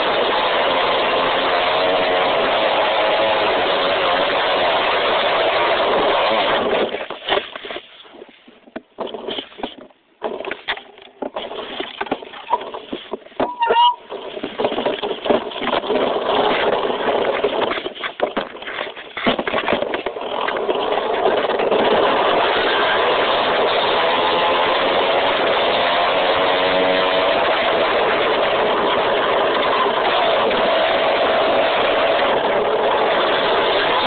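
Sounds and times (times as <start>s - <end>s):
dirt bike engine running: 10.2s - 34.0s.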